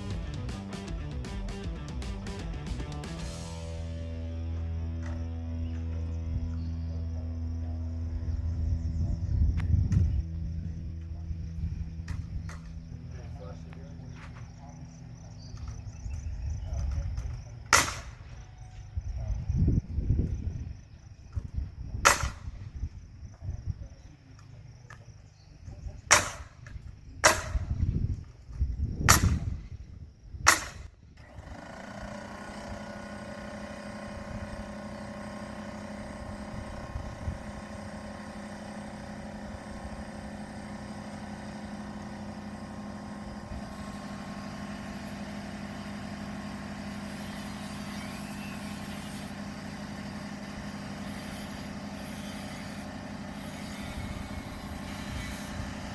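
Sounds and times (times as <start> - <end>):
steady machine drone: 0.0 - 23.9, 30.5 - 55.9
nail gun firing: 17.6 - 18.4, 22.0 - 22.8, 26.0 - 27.9, 29.0 - 29.8, 30.4 - 33.7.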